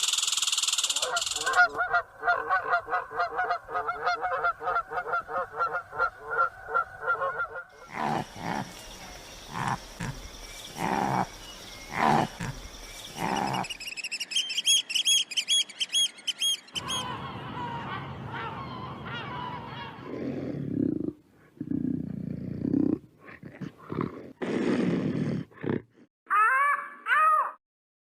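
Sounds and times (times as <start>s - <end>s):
bird chirping high: 0.0s - 1.8s, 7.8s - 20.1s
loud animal calls: 0.6s - 14.1s, 16.7s - 20.6s.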